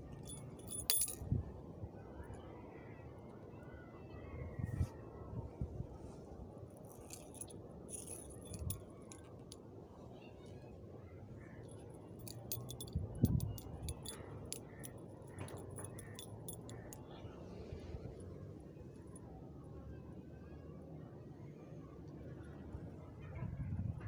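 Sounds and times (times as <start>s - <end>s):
small metal objects jingling: 0.0s - 1.2s, 6.8s - 9.6s, 11.7s - 17.0s.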